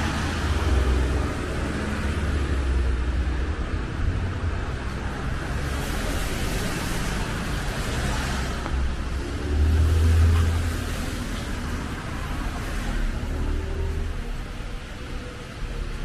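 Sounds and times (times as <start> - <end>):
car tyres hissing on wet road: 5.0 - 14.2.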